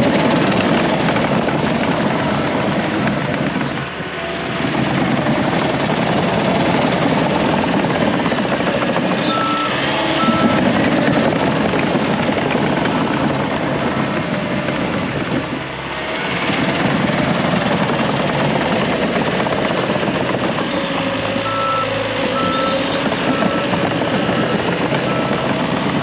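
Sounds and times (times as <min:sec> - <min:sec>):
bulldozer diesel engine running: 0:00.0 - 0:26.0
backup alarm beeps: 0:09.3 - 0:10.6, 0:21.4 - 0:25.4.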